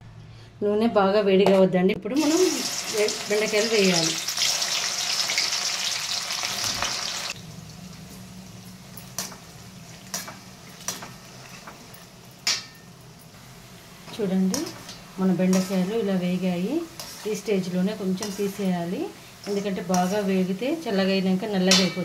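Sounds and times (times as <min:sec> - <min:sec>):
oil sizzling and bubbling: 0:02.2 - 0:21.9
metal spoon clinking on pan: 0:12.4 - 0:12.9, 0:21.7 - 0:22.0.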